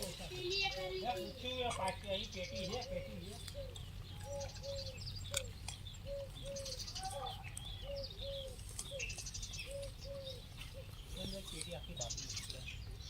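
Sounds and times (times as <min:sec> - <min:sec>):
bird chirps and trills: 0:00.0 - 0:13.0.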